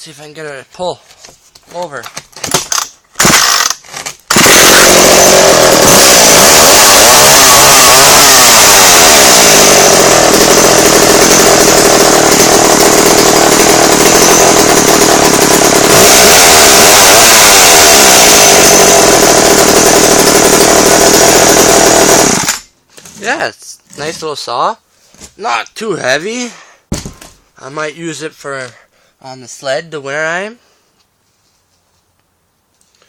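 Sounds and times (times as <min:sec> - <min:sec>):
chainsaw pull cord start: 0:02.4 - 0:22.7
chainsaw engine revving: 0:02.7 - 0:22.7.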